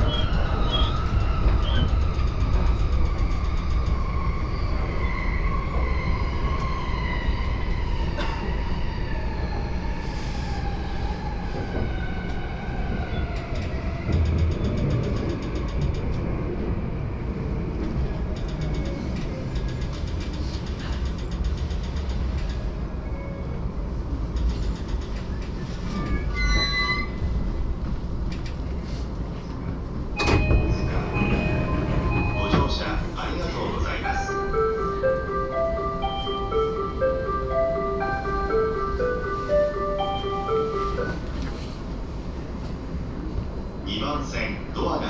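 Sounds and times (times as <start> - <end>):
train rolling rumble: 0.0 - 45.0.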